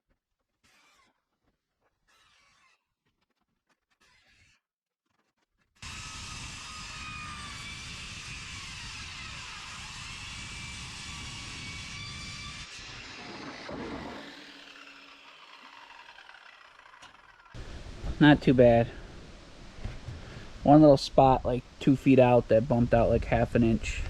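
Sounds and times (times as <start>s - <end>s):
power saw cutting sheet metal: 5.8s - 17.6s
rough scraping: 11.4s - 18.3s.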